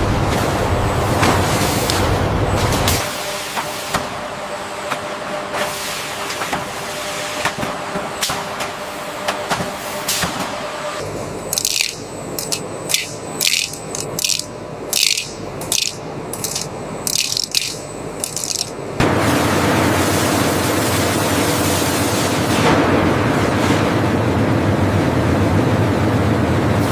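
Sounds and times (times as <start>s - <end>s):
machinery hum: 0.0s - 26.9s
machinery clicking: 11.5s - 18.7s.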